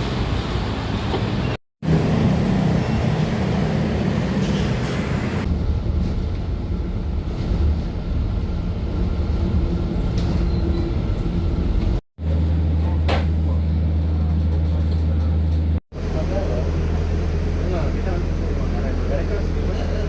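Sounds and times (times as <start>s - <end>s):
vehicle rumbling in motion: 0.0s - 20.0s.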